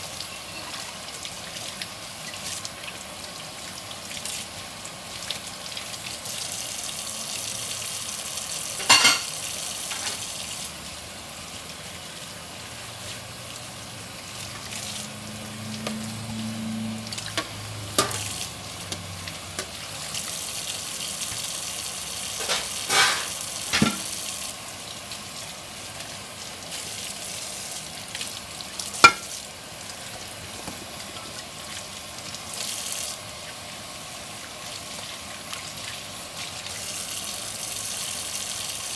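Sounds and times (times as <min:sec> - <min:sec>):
soft hissing water: 0:00.0 - 0:38.9
dishware clinking: 0:08.8 - 0:10.2, 0:18.0 - 0:18.3, 0:22.4 - 0:24.1, 0:29.0 - 0:29.3.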